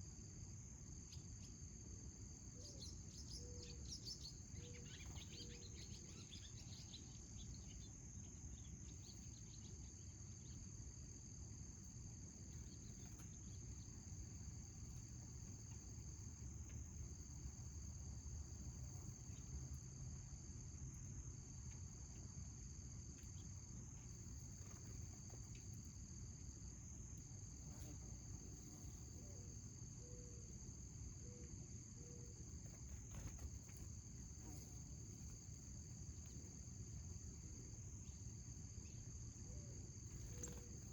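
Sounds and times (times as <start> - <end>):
high insect trill: 0.0 - 40.9
faint bird chirps: 2.6 - 10.6, 28.8 - 30.6, 38.0 - 40.9
lower broken insect trill: 21.6 - 40.9.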